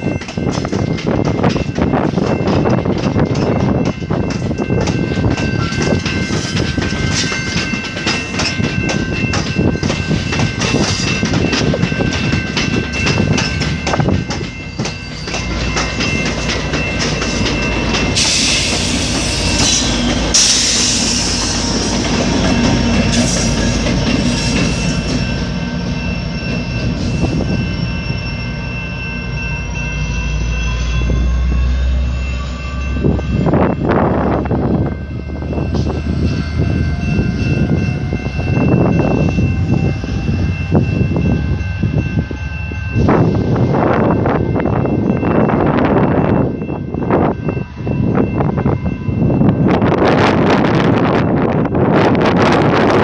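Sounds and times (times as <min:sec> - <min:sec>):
train wheels clicking over rail joints: 0:00.0 - 0:25.5.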